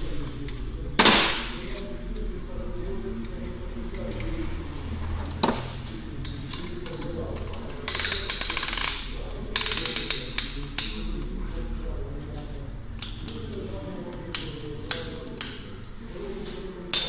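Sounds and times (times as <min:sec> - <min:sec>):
metallic ratchet clicks: 0:06.9 - 0:11.0.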